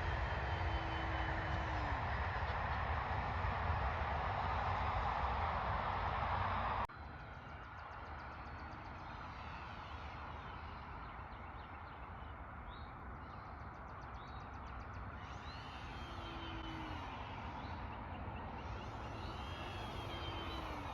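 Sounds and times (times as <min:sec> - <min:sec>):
small birds chirping and trilling: 0:07.0 - 0:20.9.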